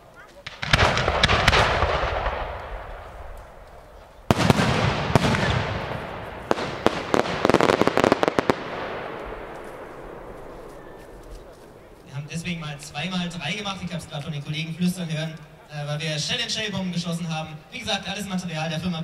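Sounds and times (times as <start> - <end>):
firework sharp cracks: 0.4 - 12.1
firework shells bursting: 0.4 - 12.6.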